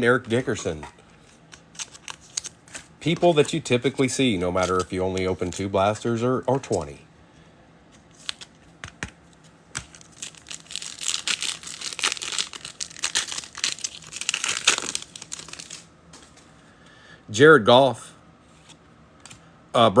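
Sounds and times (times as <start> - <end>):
wrapper crinkling: 9.8 - 16.3.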